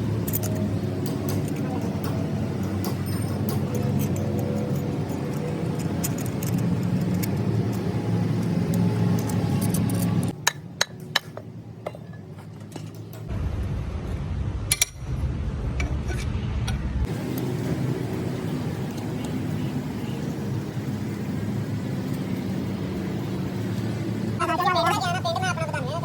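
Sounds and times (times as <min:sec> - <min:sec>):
metal tools clinking: 0:01.4 - 0:07.8
low rumble: 0:13.3 - 0:18.8.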